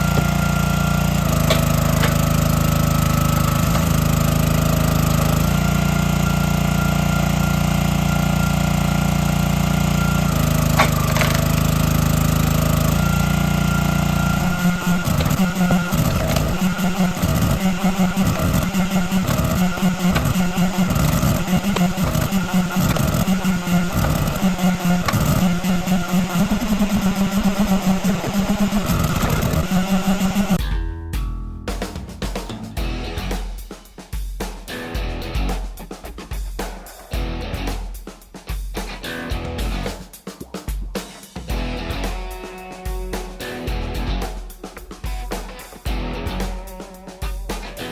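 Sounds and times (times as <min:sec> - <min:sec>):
small engine running: 0:00.0 - 0:30.6
music with pulsing beat: 0:10.4 - 0:47.9.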